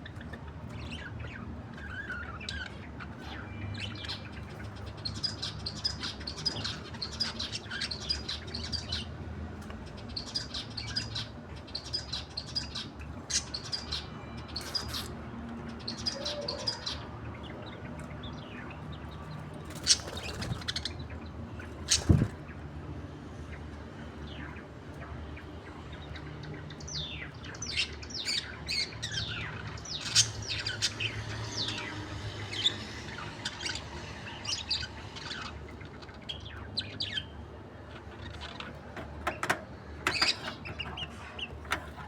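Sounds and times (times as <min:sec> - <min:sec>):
budgerigars twittering: 0:26.0 - 0:42.0.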